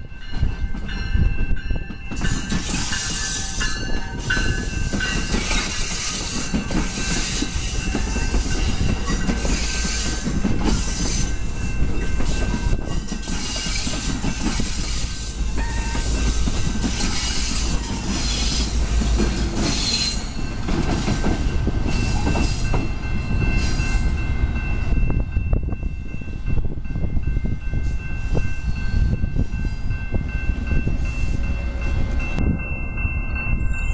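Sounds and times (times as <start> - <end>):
train wheels rumbling: 0.0 - 33.9
wheels squealing on rails: 1.8 - 25.0.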